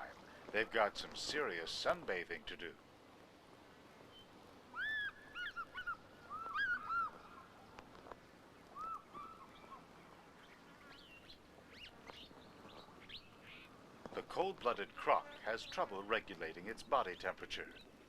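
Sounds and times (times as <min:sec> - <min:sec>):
faint steady hiss: 0:00.0 - 0:18.0
birds calling: 0:03.9 - 0:18.0
higher bird chirps: 0:04.1 - 0:07.7.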